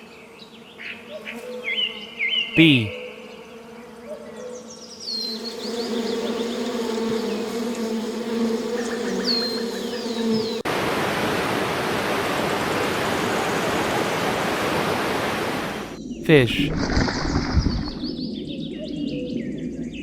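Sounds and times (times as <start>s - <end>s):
bee buzzing: 3.1s - 14.4s.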